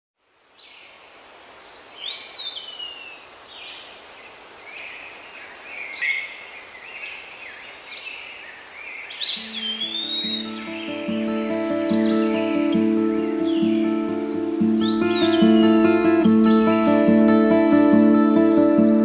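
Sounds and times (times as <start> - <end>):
faint steady hiss: 0.2 - 19.0
songbirds whistling: 4.8 - 16.9.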